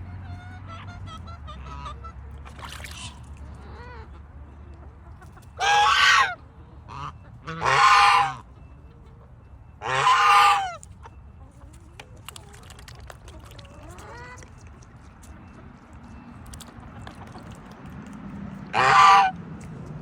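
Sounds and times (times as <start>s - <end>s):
poultry calling: 5.2s - 8.6s, 9.8s - 17.4s, 18.7s - 19.4s.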